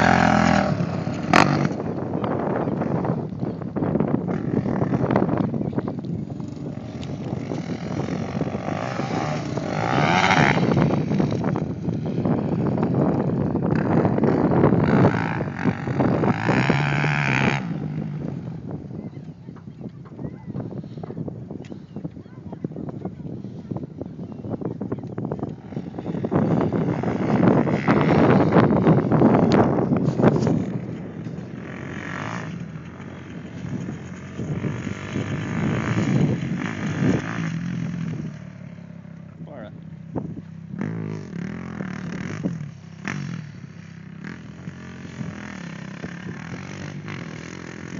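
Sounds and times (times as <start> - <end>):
motocross bike engines revving: 0.0 - 47.9.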